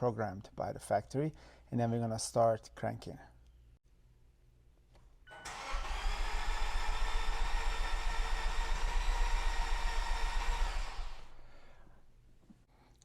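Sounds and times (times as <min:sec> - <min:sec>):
starter motor cranking: 0:05.4 - 0:11.8.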